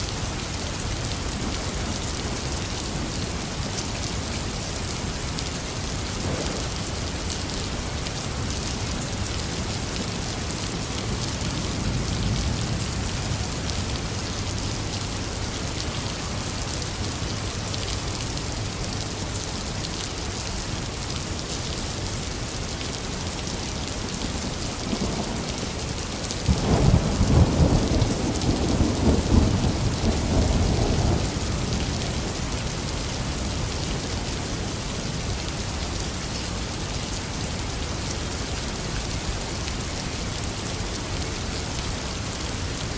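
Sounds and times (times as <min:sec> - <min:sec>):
heavy rain falling: 0:00.0 - 0:42.9
thunder rumbling: 0:26.4 - 0:31.8.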